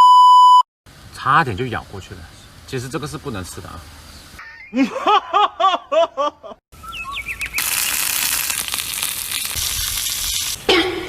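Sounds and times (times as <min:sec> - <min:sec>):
steady loud hiss: 0:07.6 - 0:10.7.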